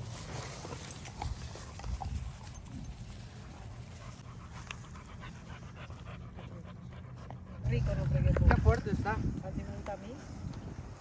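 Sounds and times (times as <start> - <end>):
dog panting: 3.4 - 9.2.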